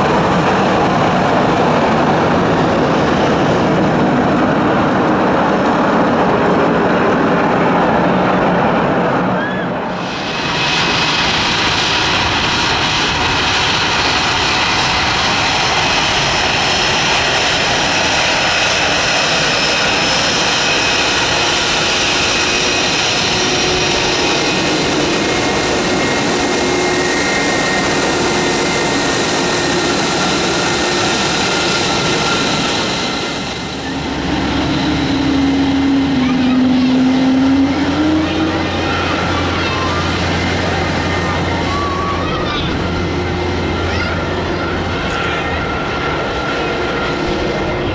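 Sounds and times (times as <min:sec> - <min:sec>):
jet engines running: 0:00.0 - 0:47.9
high whining tones: 0:14.6 - 0:47.9.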